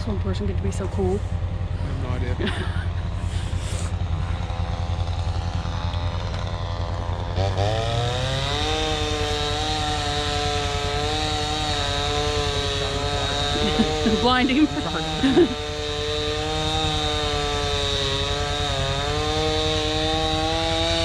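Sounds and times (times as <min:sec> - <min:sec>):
chainsaw revving: 0:01.6 - 0:21.0.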